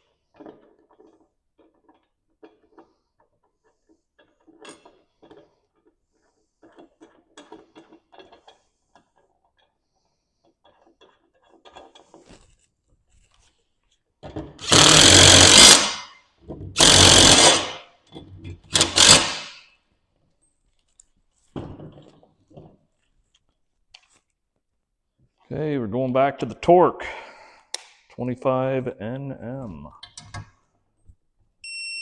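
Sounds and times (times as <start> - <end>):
tools and hardware rattling: 0.0 - 13.6, 14.2 - 19.8
power tool running bolts: 14.6 - 16.2, 16.8 - 17.9, 18.7 - 19.6.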